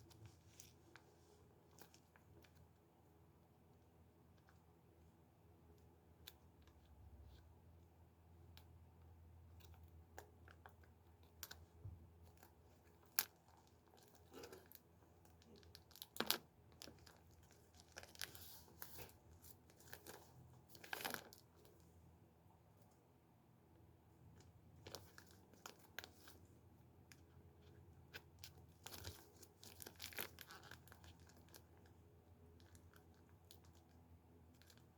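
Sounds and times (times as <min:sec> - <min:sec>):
plastic packaging crinkling and tearing: 0:28.8 - 0:31.6.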